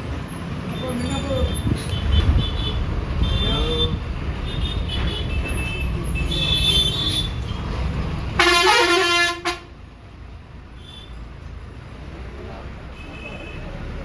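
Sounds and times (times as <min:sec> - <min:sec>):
bus rumbling: 0:00.0 - 0:14.0
vehicle horn blast: 0:08.4 - 0:09.7.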